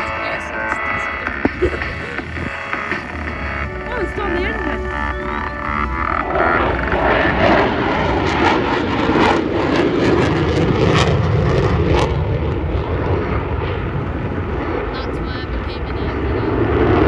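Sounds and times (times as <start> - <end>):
jet flying past crackling: 4.4 - 17.0.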